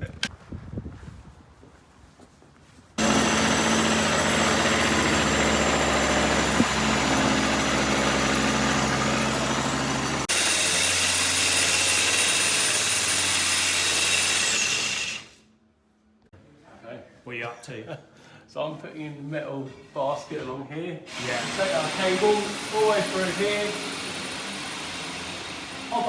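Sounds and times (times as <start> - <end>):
machine high whine: 3.0 - 10.5
groundworks machinery running: 3.0 - 15.3, 21.1 - 26.0.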